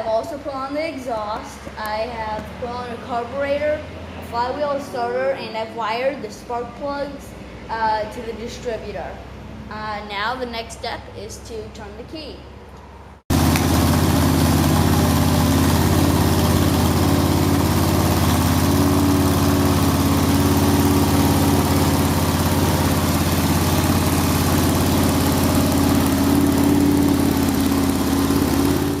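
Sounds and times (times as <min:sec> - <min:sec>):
vee eight engine running: 0:13.3 - 0:29.0.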